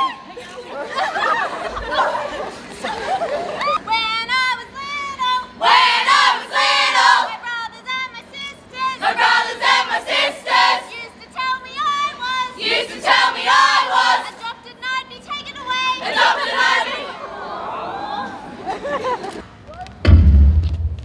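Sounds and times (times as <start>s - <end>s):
young voices singing together: 5.4s - 7.4s, 8.8s - 11.1s, 12.2s - 14.4s.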